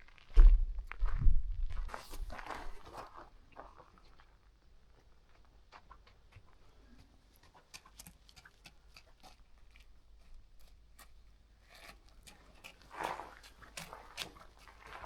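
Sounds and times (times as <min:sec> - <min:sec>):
footsteps crunching on gravel: 0:00.1 - 0:04.0.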